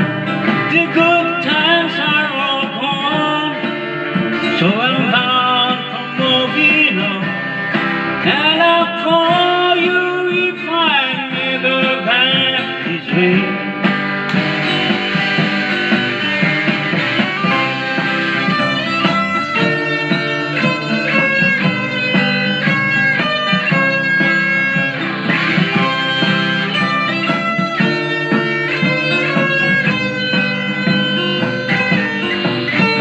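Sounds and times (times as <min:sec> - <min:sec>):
guitar picking melody: 0:00.0 - 0:33.0
steady music backing: 0:12.4 - 0:33.0.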